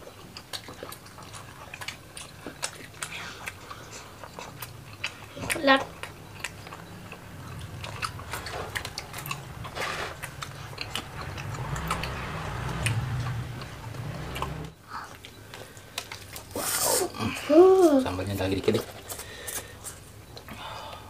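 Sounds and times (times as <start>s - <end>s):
close-miked chewing: 0.0s - 21.0s
low hum: 5.9s - 15.1s.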